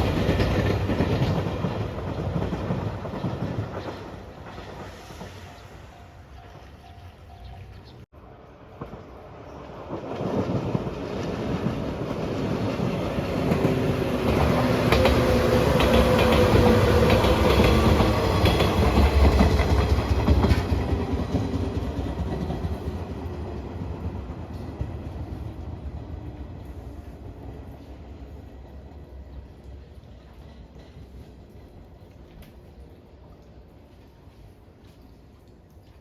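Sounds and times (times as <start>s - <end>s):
wheels clattering over rail joints: 0.0s - 8.0s
train rumbling past: 0.0s - 34.6s.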